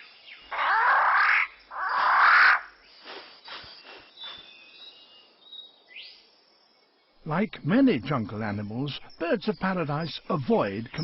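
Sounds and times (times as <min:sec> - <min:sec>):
loud harsh bird calls: 0:00.0 - 0:05.0
faint forest birdsong: 0:00.0 - 0:11.0.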